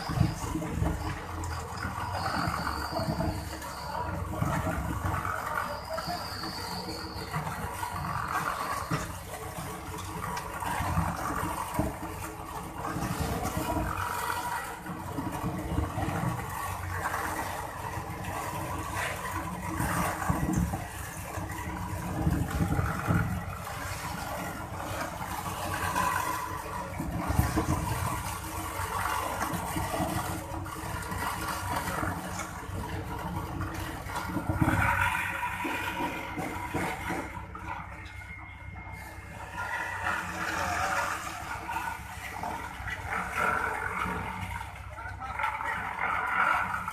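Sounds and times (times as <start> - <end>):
excavator engine running: 0.0 - 46.9.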